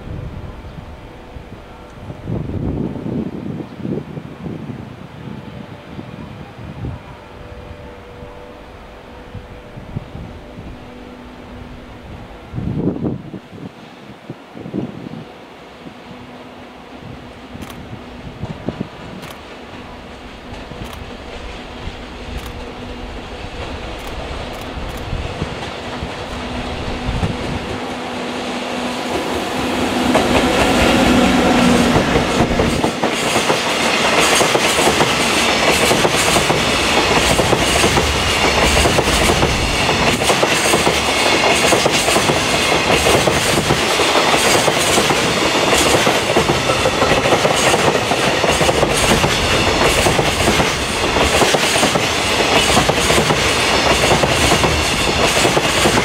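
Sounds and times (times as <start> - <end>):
electric locomotive humming: 0.0 - 56.0
freight train wheels clacking: 17.5 - 56.0.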